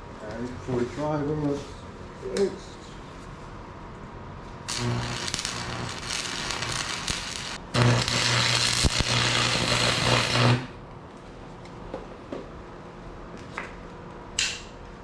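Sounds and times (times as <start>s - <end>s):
welder buzzing: 4.7s - 10.8s
welding arc crackling hiss: 4.7s - 10.8s.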